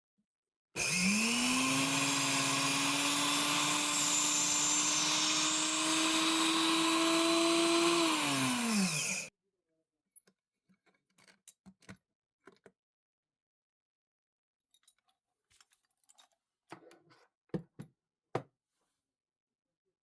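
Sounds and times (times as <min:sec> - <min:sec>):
blender motor grinding: 0:00.8 - 0:09.3.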